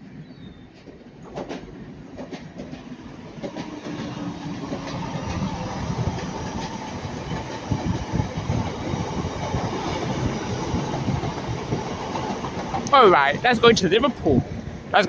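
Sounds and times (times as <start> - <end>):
diesel train rumbling past: 0.0 - 15.0.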